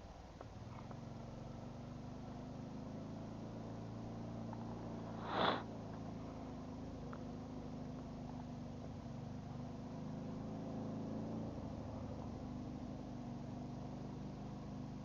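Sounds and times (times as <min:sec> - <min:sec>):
short rushing whoosh: 0:05.1 - 0:05.7.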